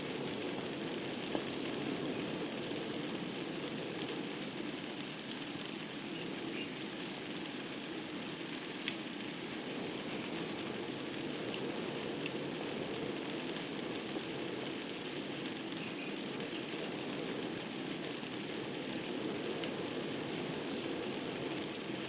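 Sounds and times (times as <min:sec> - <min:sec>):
burning logs crackling: 0:00.0 - 0:22.0
fire flames hissing: 0:00.0 - 0:22.0.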